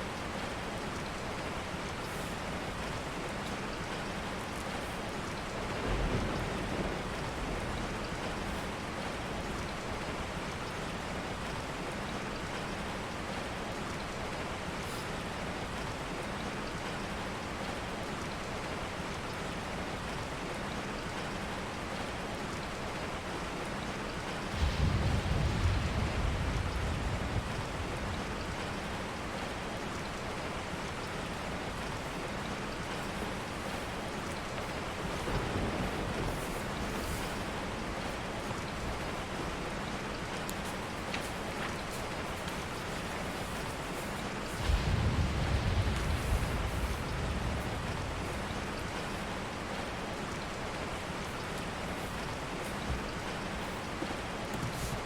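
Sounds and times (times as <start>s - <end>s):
steady rain: 0.0s - 55.0s
low rumbles: 44.5s - 49.7s.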